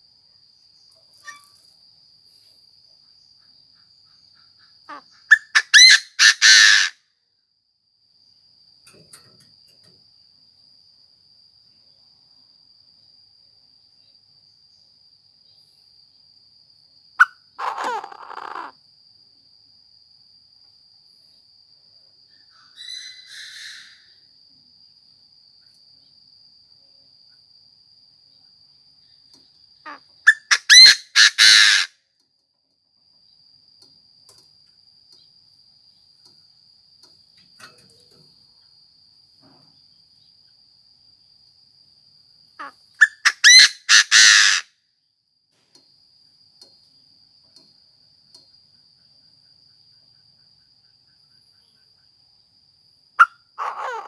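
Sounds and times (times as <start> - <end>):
francolin crowing: 1.1 - 1.6, 4.8 - 7.0, 17.2 - 18.8, 22.3 - 24.2, 29.8 - 31.9, 42.6 - 44.7, 53.2 - 54.0.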